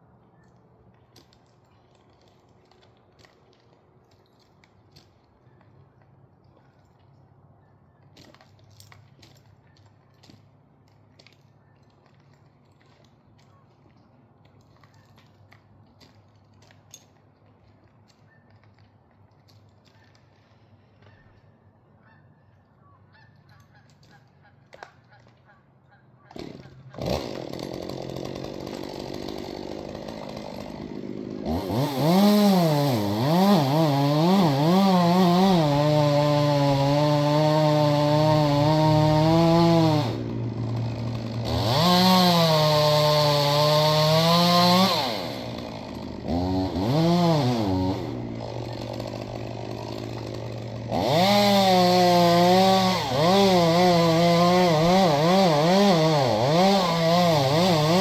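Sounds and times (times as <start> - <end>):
chainsaw idling and revving: 26.4 - 58.0.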